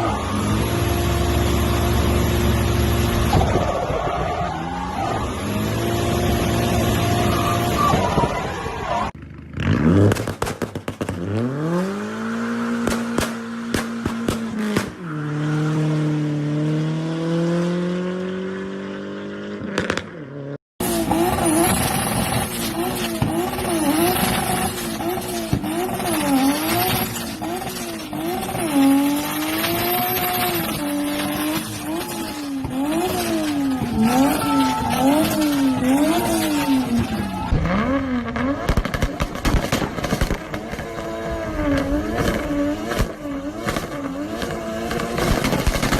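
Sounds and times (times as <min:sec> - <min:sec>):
car engines revving: 0:00.0 - 0:45.9.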